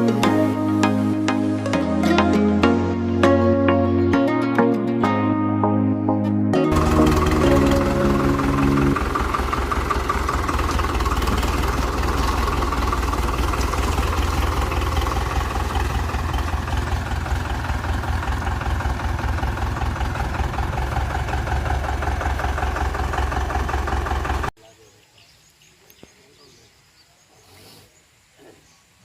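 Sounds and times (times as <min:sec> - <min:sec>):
tractor diesel engine idling: 0:06.7 - 0:24.6.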